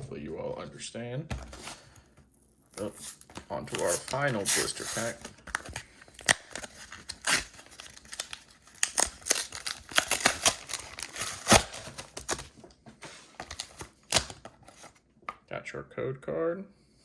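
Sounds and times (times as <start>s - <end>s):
plastic blister pack crackling: 2.8s - 12.6s.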